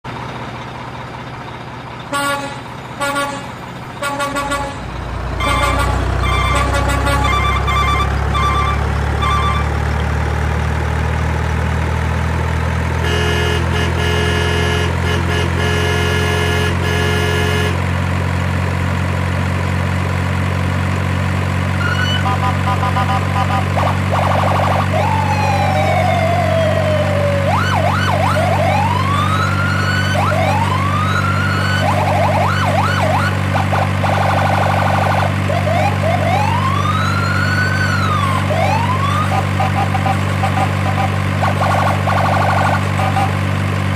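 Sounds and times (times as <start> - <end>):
low engine drone: 0.0 - 43.9
siren wailing: 4.0 - 9.9, 21.8 - 43.5
short electronic beeps: 5.5 - 9.8.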